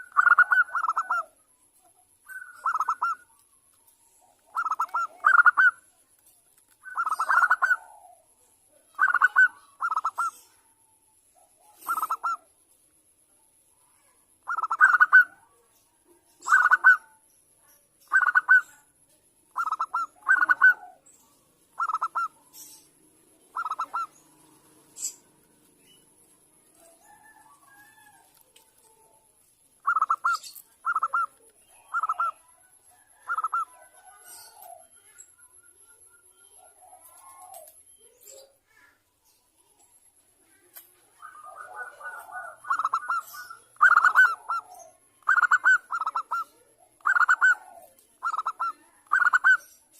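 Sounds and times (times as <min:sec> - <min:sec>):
dove cooing: 0:00.0 - 0:01.4, 0:02.3 - 0:03.4, 0:04.1 - 0:05.8, 0:06.8 - 0:10.7, 0:11.4 - 0:12.5, 0:14.4 - 0:15.5, 0:16.4 - 0:17.2, 0:18.1 - 0:18.8, 0:19.5 - 0:21.1, 0:21.7 - 0:25.5, 0:26.6 - 0:29.2, 0:29.8 - 0:35.2, 0:36.6 - 0:38.5, 0:40.6 - 0:49.7.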